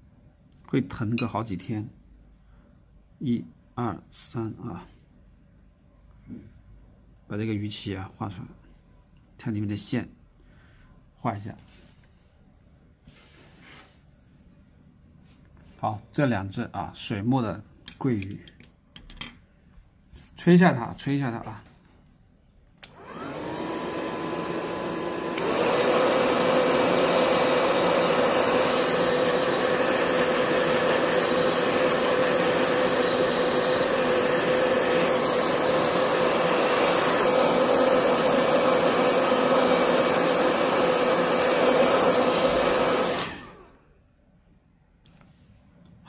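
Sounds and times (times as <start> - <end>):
hair dryer blowing: 22.8 - 43.8.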